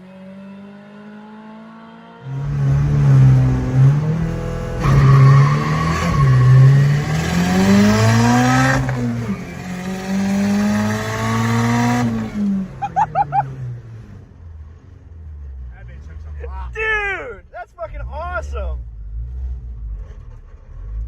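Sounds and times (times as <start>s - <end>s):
engine revving hard: 0.0s - 13.5s
tires squealing: 2.2s - 9.6s.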